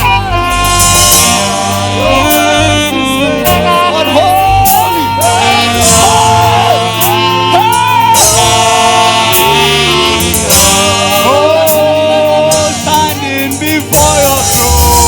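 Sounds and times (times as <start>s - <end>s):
gospel band and choir: 0.0s - 15.0s.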